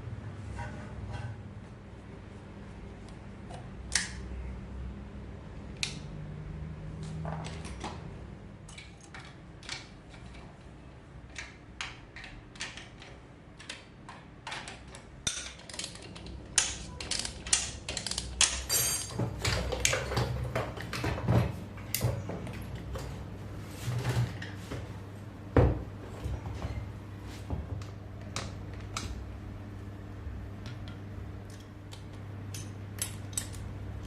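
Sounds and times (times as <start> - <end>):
tools and metal parts clicking: 8.7 - 10.5, 11.3 - 20.3, 32.5 - 33.7.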